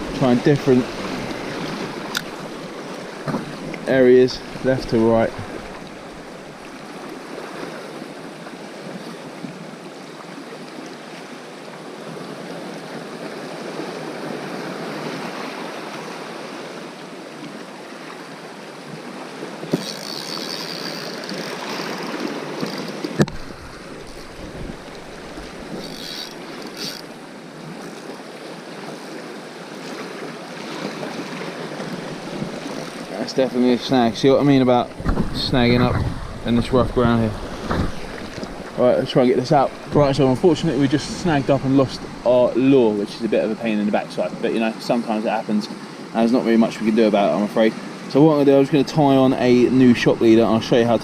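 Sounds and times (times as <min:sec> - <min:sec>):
waves washing on rocky shore: 0:00.0 - 0:08.2, 0:28.6 - 0:51.0
wind rumble on microphone: 0:34.1 - 0:42.6.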